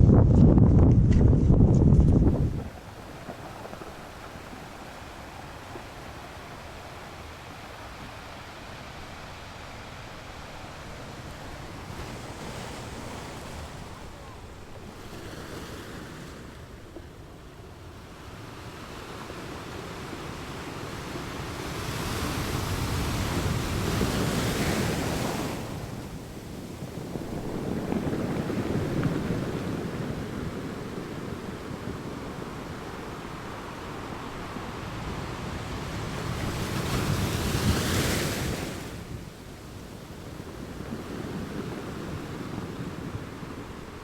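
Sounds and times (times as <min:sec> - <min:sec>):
wind rumbling on microphone: 0:00.0 - 0:44.0
waves breaking on beach: 0:02.4 - 0:44.0.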